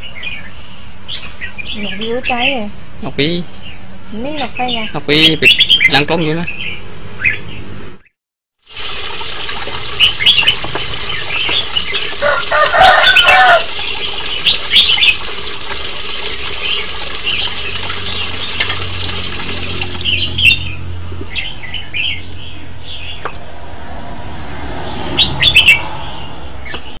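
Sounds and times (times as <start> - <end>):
bird chirping: 3.4 - 8.2, 9.9 - 12.2, 12.8 - 15.3, 19.6 - 23.3, 25.0 - 27.0.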